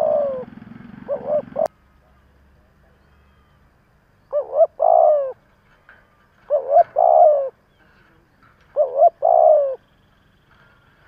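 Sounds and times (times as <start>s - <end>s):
dove cooing: 0.0s - 1.7s, 4.3s - 5.4s, 6.4s - 7.6s, 8.7s - 9.8s.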